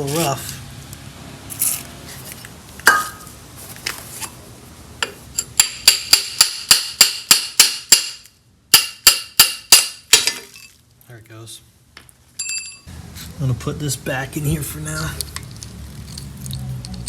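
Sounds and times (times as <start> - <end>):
hammer striking steel: 2.9 - 3.3, 5.0 - 10.5.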